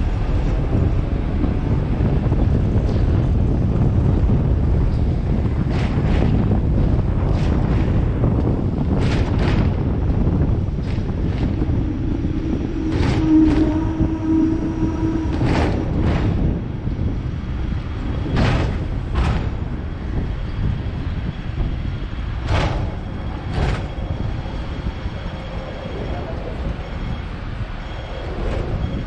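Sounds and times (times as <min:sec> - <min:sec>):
tram rumbling on rails: 0:00.0 - 0:29.0
wheels clacking over rail joints: 0:00.0 - 0:29.0
brief hum: 0:11.6 - 0:16.2.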